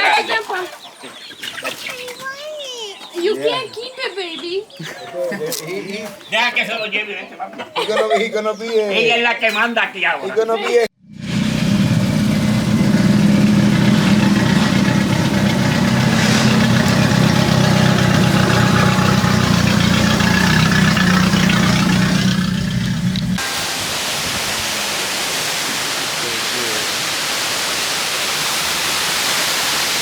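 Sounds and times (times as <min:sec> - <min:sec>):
vehicle engine humming: 0:11.0 - 0:23.6.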